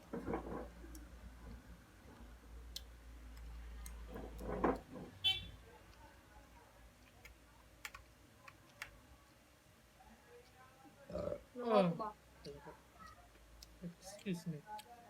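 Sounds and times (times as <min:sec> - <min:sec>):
murmured voice: 0:10.9 - 0:12.0.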